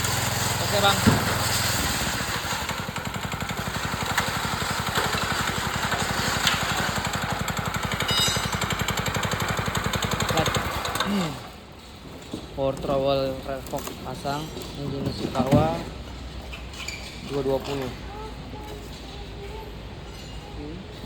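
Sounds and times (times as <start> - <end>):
power trowel engine puttering: 0.0 - 11.9.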